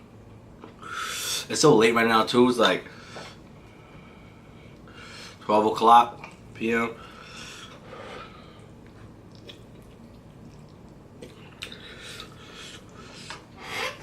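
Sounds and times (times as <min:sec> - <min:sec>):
person chewing noodles: 0:08.6 - 0:13.5
mouth clicks and smacks: 0:09.3 - 0:14.0.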